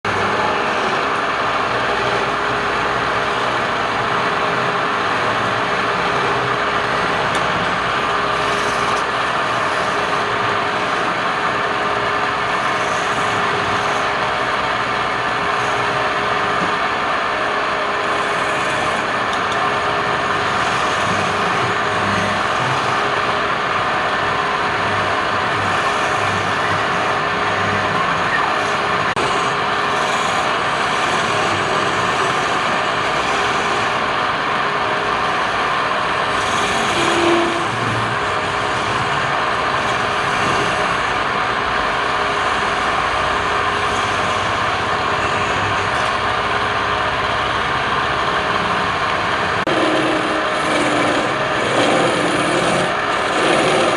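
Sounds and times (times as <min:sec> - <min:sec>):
wood lathe humming: 0:00.0 - 0:53.9.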